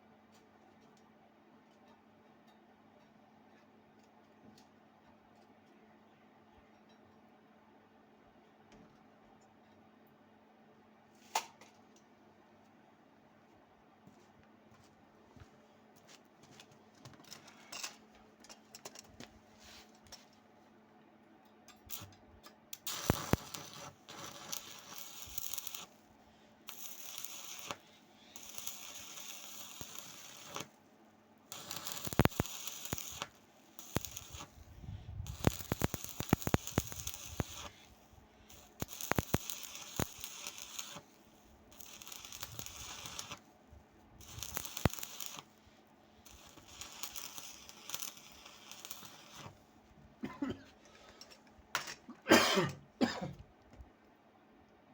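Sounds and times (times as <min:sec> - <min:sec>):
welding arc crackling: 0:21.9 - 0:22.2, 0:22.8 - 0:30.8, 0:31.5 - 0:43.6, 0:44.2 - 0:45.6, 0:46.2 - 0:49.6
small clicks: 0:31.5 - 0:34.5, 0:35.3 - 0:37.8, 0:38.5 - 0:41.1, 0:41.7 - 0:43.4, 0:44.2 - 0:45.5, 0:46.3 - 0:49.5.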